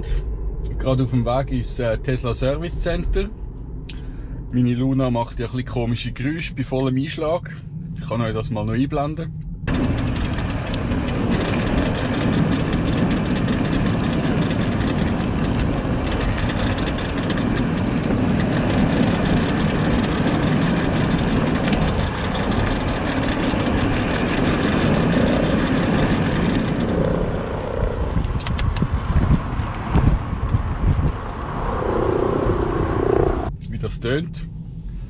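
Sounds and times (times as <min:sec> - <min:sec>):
electric car rushing noise: 0:09.5 - 0:33.5.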